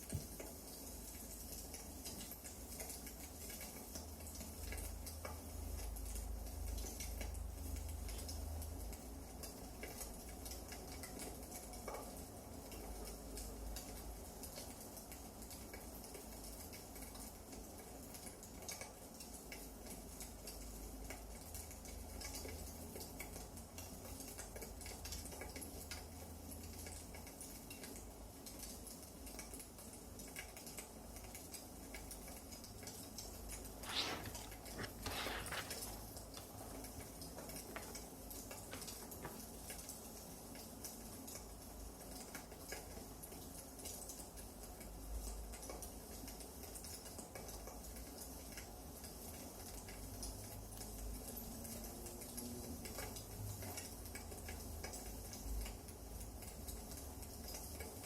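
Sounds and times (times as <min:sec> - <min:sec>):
firewood crackling: 0:33.7 - 0:39.6.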